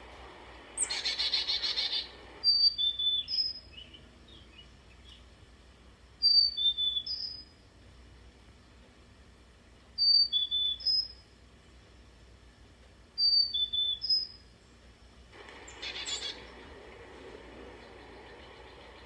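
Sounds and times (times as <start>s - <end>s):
songbird whistling high notes: 0.8s - 3.8s, 10.0s - 11.1s, 13.2s - 14.4s.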